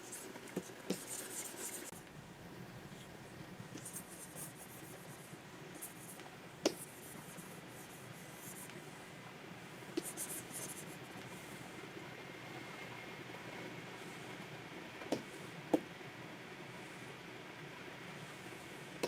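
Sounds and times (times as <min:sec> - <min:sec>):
stylus scratching on pen tablet: 0:00.0 - 0:02.0, 0:03.7 - 0:08.8, 0:10.0 - 0:11.6.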